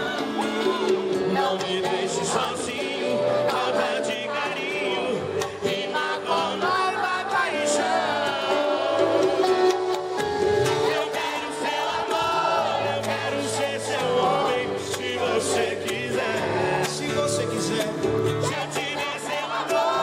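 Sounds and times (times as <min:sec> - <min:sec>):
crowd singing along: 0:00.0 - 0:20.0
live concert music: 0:00.0 - 0:20.0.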